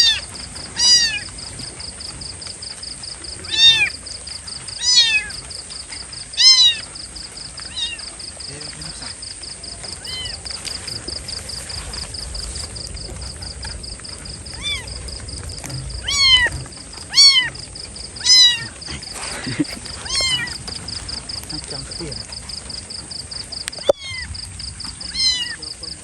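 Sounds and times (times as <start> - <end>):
kitten meowing: 3.4 - 3.9, 4.8 - 5.3, 6.4 - 6.9, 7.7 - 8.1, 10.0 - 10.5, 14.6 - 14.9, 15.7 - 17.6, 18.2 - 18.8, 20.0 - 20.6, 23.8 - 24.3, 25.0 - 25.7.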